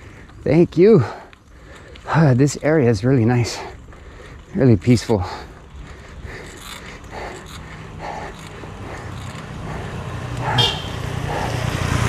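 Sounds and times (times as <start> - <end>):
vehicle engine approaching: 5.5 - 12.0
short high-pitched call: 10.6 - 11.0.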